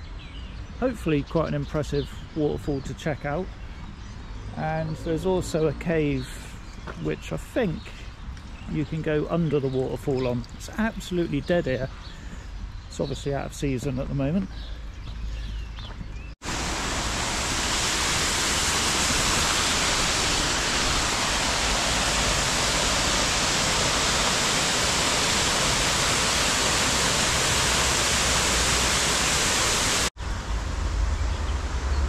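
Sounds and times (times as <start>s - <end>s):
low water rumble: 16.4s - 32.0s
waterfall rushing: 16.4s - 32.0s.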